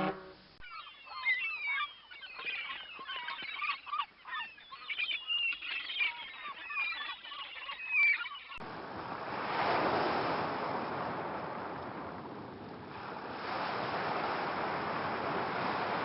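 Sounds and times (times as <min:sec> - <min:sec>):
flock of birds calling: 0:00.0 - 0:08.6.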